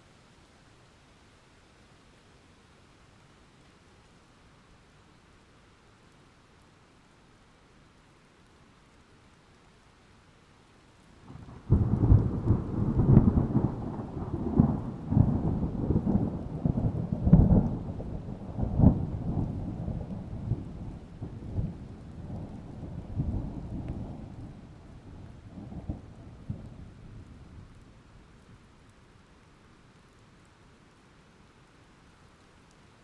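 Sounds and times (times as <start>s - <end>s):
steady rain: 0.0s - 33.0s
thunder cracks and rumbles: 11.3s - 27.6s.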